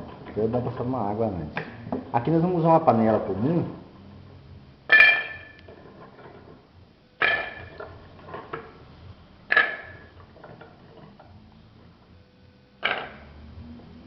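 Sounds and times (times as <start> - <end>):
metal pot clanking: 4.9 - 5.6, 7.2 - 8.7, 9.5 - 11.2.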